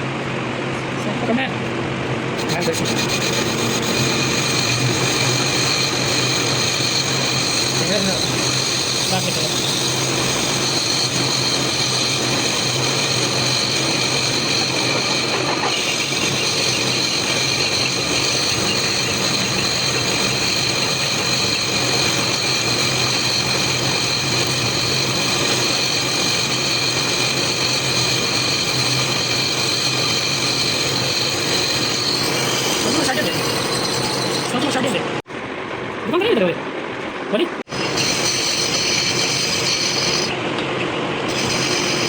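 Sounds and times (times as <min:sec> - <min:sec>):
machine motor humming and whining: 0:02.2 - 0:34.6.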